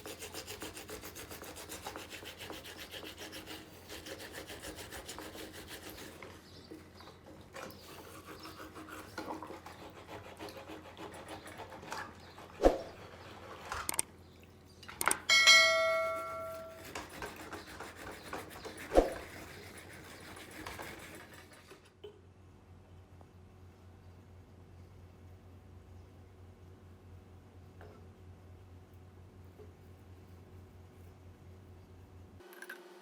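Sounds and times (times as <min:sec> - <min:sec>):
struck metal ringing: 0:15.3 - 0:16.8.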